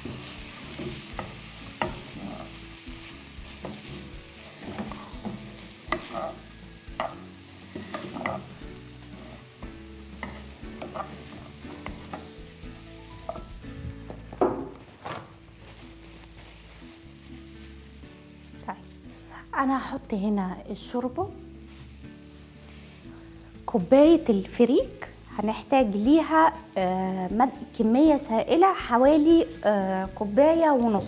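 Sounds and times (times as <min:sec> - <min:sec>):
grain sizzling in hot fat: 0:00.0 - 0:14.0, 0:15.2 - 0:31.0
spoon scraping and tapping pot: 0:04.6 - 0:08.5, 0:10.2 - 0:12.3, 0:13.2 - 0:13.5.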